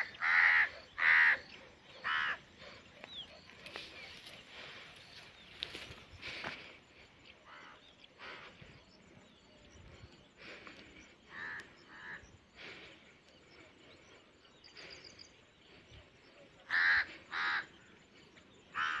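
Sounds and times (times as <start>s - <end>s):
harsh crow-like bird calls: 0.0s - 4.7s, 7.4s - 8.6s, 10.4s - 15.7s, 16.5s - 19.0s.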